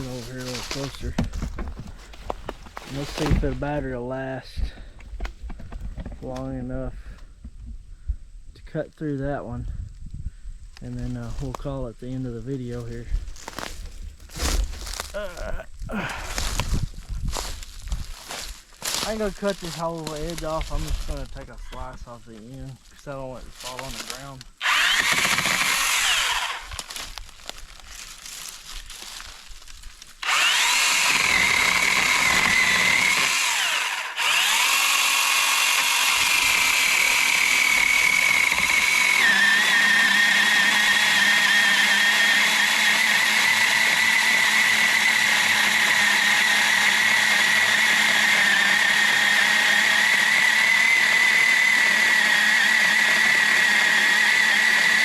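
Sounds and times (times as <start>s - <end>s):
electric chainsaw cutting log: 0.0s - 1.7s, 18.2s - 21.2s, 23.6s - 55.0s.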